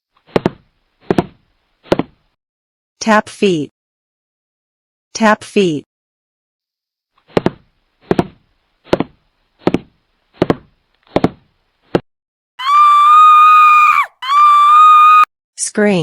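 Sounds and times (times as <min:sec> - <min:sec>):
high steady scream: 0:12.6 - 0:15.3.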